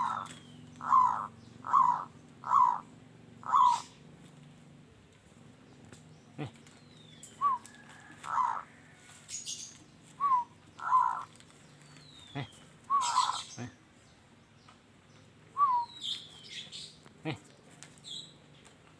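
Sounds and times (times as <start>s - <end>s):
dove cooing: 0.0s - 4.1s, 6.4s - 8.9s, 10.2s - 11.4s, 12.2s - 13.8s
small birds high whistles: 7.1s - 7.7s, 9.5s - 11.2s, 12.9s - 13.5s, 15.6s - 16.9s.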